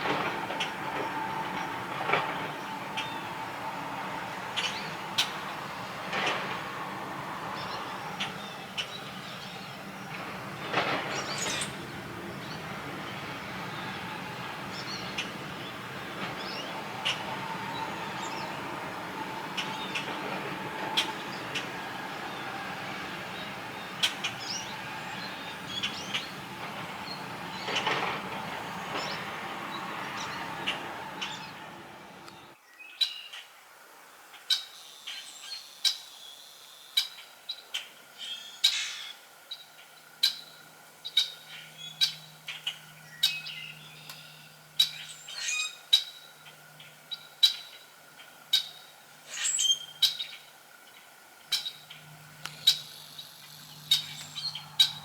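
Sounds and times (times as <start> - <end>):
steady noisy background: 0.0 - 32.6
small birds chirping: 0.1 - 6.0, 7.1 - 33.4, 34.6 - 55.0.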